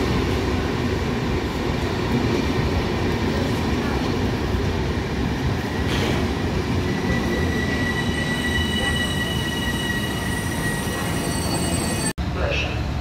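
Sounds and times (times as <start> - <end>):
train coaches rumbling past: 0.0 - 13.0
higher squealing tone: 6.8 - 12.1
metallic squeal from running gear: 7.0 - 12.1.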